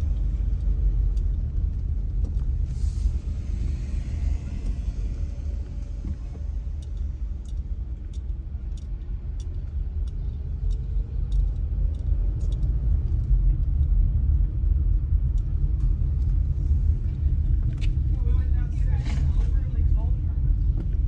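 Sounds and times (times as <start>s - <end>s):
road and engine rumble: 0.0s - 21.0s
light ticking: 5.6s - 14.0s.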